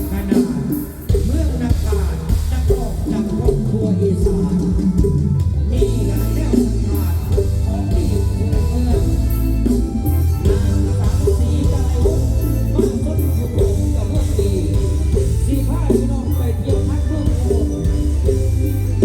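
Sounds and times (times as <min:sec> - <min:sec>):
heavy bass: 0:00.0 - 0:19.0
live band music: 0:00.0 - 0:19.0
plucked string melody: 0:05.1 - 0:19.0.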